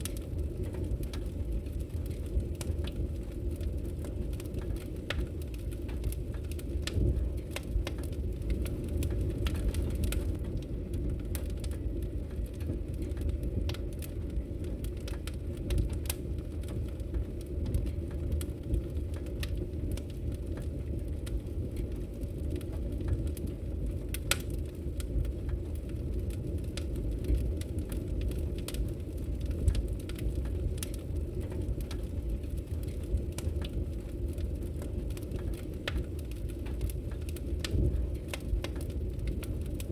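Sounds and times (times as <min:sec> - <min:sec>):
fire crackling and popping: 0:00.0 - 0:39.9
flames rumbling: 0:00.0 - 0:39.9.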